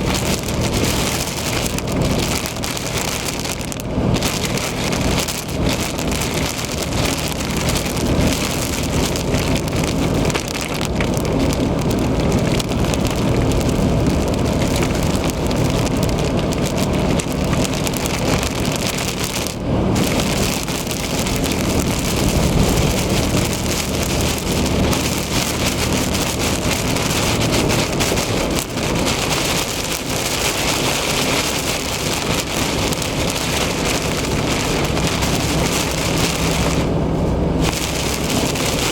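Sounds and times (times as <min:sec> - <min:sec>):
heavy rain on a car: 0:00.0 - 0:38.9
road and engine hum: 0:00.0 - 0:38.9.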